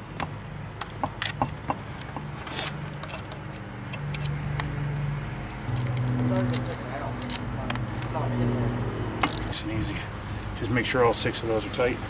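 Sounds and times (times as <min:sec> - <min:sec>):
low steady hum: 0:05.2 - 0:10.8.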